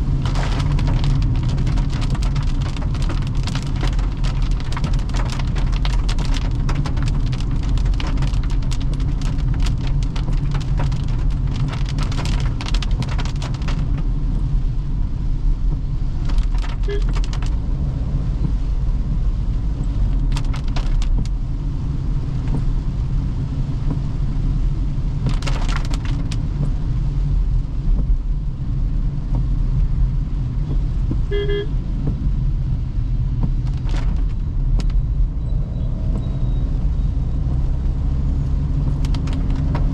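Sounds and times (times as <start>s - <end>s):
raindrops pattering: 0.0s - 17.7s, 18.3s - 35.3s, 36.0s - 39.9s
road and tyre drone: 0.0s - 39.9s
brief beep: 35.0s - 36.7s.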